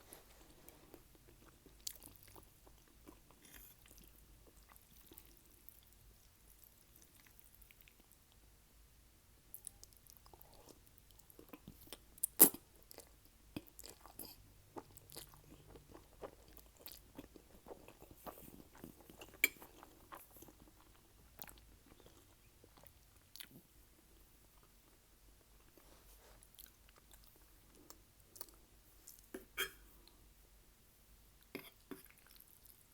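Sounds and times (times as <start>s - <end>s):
chewing: 0.1s - 5.9s, 9.5s - 23.7s.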